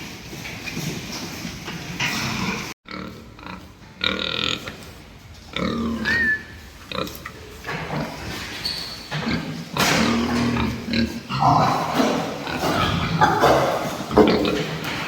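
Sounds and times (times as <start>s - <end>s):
pigs squealing and grunting: 5.5s - 15.0s.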